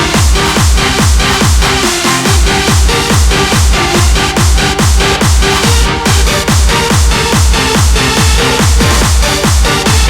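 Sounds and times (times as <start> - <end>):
electronic dance music: 0.0 - 10.0
kick drum thumping: 0.0 - 10.0.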